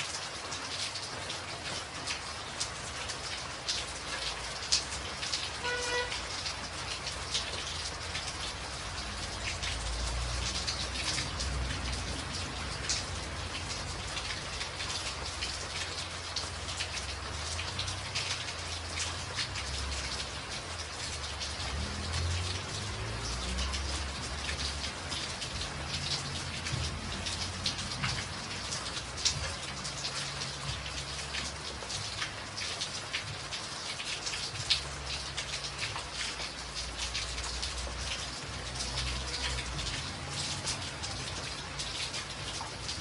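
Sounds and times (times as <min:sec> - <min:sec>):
rain on a tin roof: 0:00.0 - 0:43.0.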